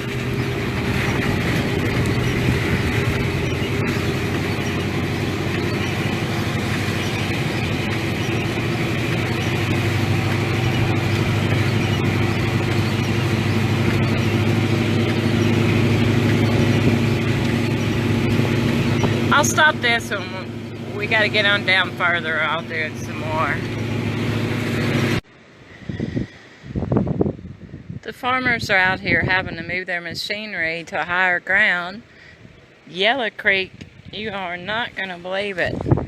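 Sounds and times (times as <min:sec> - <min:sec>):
pickup truck engine hum: 0:00.0 - 0:28.0
road noise: 0:00.0 - 0:36.0.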